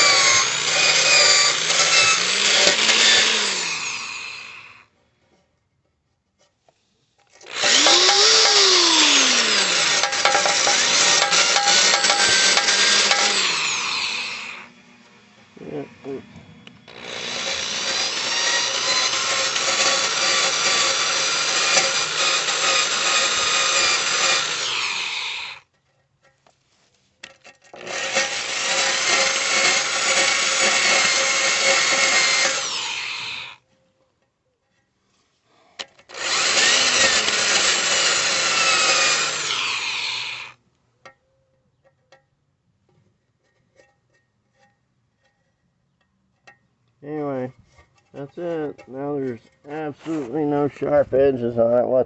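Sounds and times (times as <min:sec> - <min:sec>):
wire brush scrubbing steel: 0:07.6 - 0:14.7.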